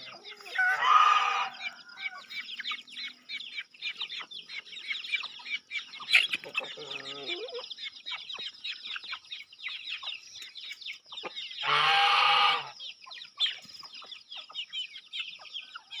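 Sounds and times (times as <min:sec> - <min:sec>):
small birds chirping: 0:00.0 - 0:16.0
chicken call: 0:00.4 - 0:02.3, 0:11.6 - 0:12.8.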